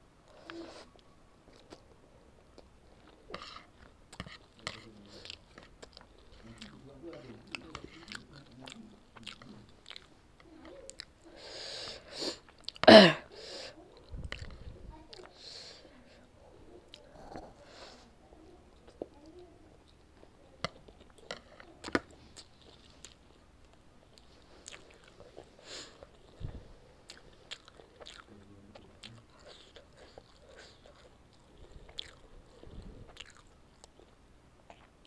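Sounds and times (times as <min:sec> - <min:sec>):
person chewing: 0:00.3 - 0:11.2, 0:12.3 - 0:12.9, 0:20.6 - 0:35.0.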